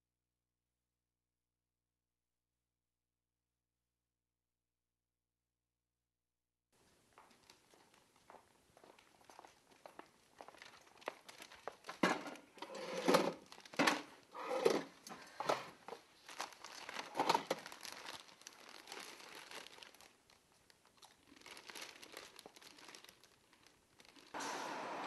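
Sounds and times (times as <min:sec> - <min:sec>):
crinkling and rustling: 0:07.2 - 0:08.2, 0:08.9 - 0:24.4.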